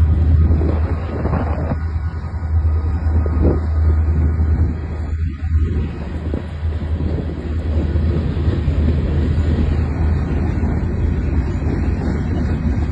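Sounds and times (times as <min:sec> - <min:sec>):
freight train rumbling on rails: 0:00.0 - 0:12.9.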